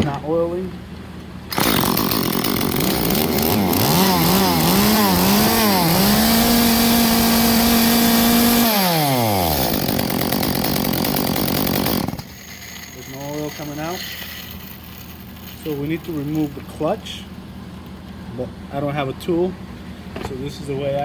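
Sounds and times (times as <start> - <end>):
chainsaw revving: 1.5 - 16.5.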